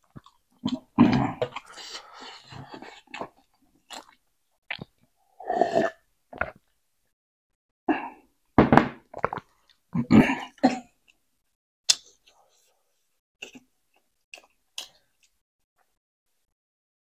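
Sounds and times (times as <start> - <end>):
person chewing: 0.0 - 5.0, 13.4 - 15.4.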